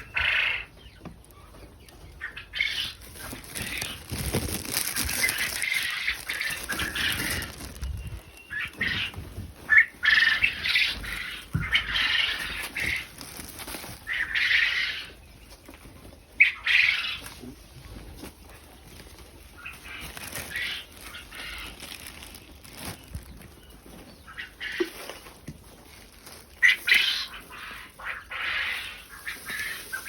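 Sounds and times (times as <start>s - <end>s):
quails flapping wings: 2.2s - 15.0s, 19.5s - 24.9s.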